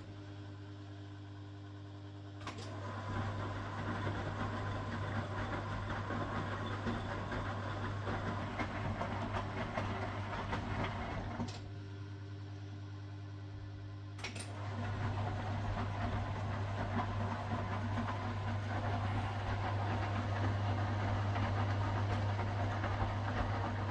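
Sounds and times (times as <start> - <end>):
washing machine churning and rattling: 2.5 - 11.7, 14.2 - 23.9.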